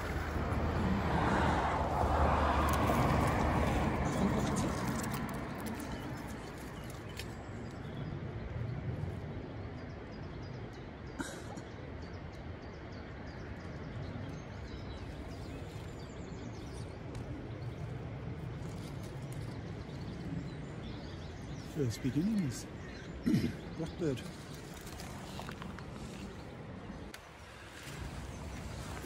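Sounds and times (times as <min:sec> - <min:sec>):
steady low rumble: 0:00.0 - 0:11.0
wild birds singing and chirping: 0:00.0 - 0:29.0.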